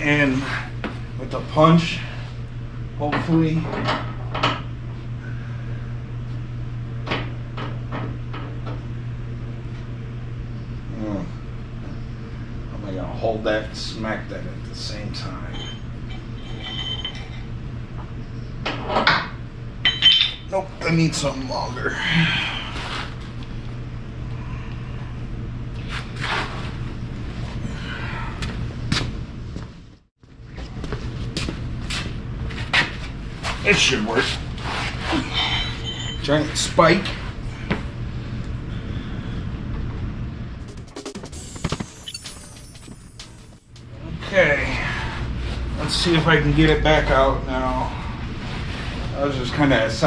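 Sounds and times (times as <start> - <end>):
steady low hum: 0.0 - 50.0
metal tools clanking: 41.0 - 43.8.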